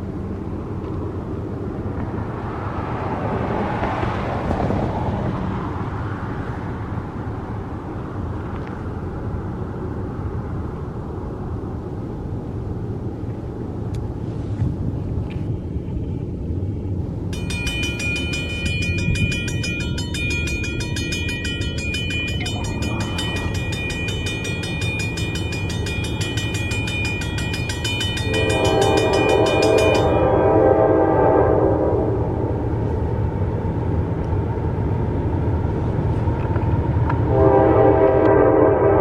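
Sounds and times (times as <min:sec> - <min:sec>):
freight train rumbling: 0:00.0 - 0:39.0
high steady ringing tone: 0:17.3 - 0:30.6
locomotive air horn chord: 0:28.2 - 0:32.2, 0:37.2 - 0:39.0.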